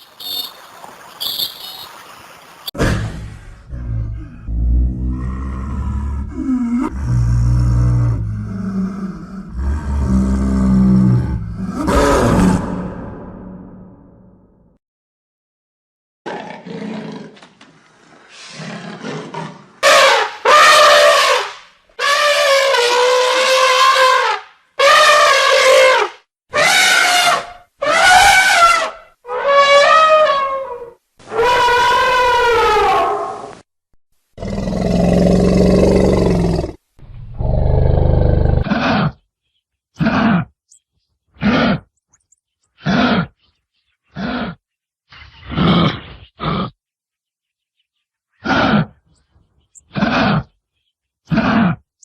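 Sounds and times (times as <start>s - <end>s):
wild animal calls and roars: 3.3s - 13.2s, 26.6s - 33.6s, 34.4s - 39.3s, 39.9s - 40.6s, 41.3s - 41.9s, 42.8s - 43.4s, 44.0s - 46.8s, 48.3s - 49.1s, 49.8s - 50.6s, 51.2s - 51.9s.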